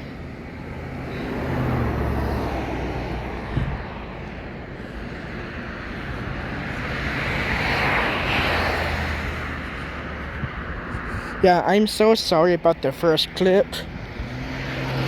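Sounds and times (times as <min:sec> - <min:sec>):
rushing noise: 0:00.0 - 0:11.7
vehicle engine hum: 0:00.0 - 0:15.0.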